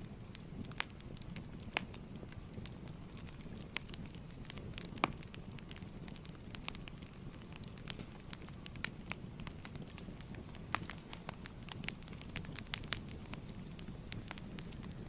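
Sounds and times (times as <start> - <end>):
fireplace crackling: 0.0 - 15.0
wood popping and snapping: 6.2 - 13.3.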